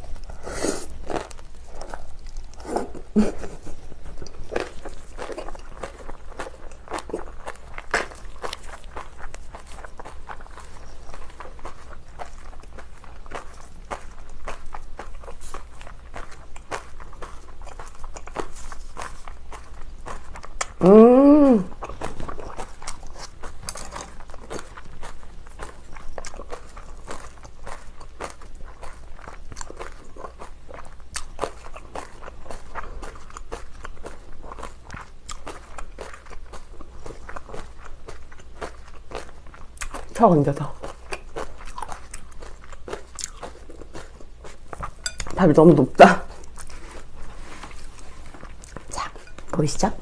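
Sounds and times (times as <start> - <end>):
crisp cabbage crunches: 0.0 - 20.9, 21.5 - 45.5
wet chewing: 0.0 - 50.0
person humming mmm: 20.7 - 21.8.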